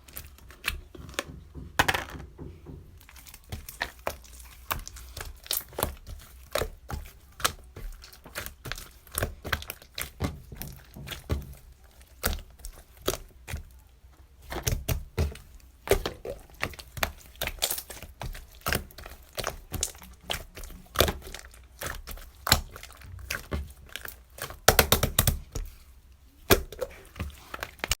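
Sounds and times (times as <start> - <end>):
sharp taps and knocks: 1.0 - 3.7.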